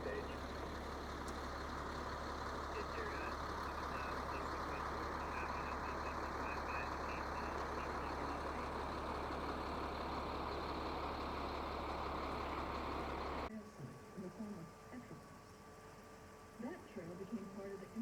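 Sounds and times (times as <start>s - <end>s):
steady running noise: 0.0s - 13.5s
low hum: 0.0s - 15.2s
faint high chirps: 2.8s - 9.1s.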